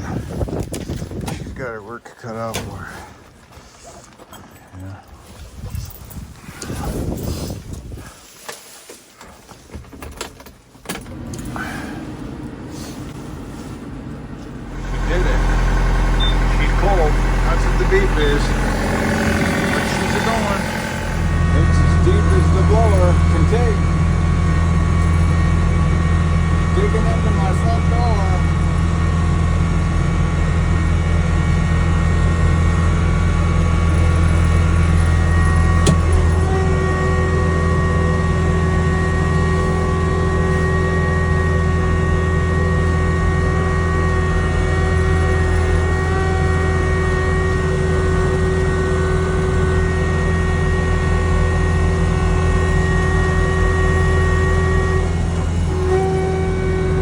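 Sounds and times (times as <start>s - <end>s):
snowblower engine running: 10.9s - 57.0s
steady whine: 11.0s - 28.4s.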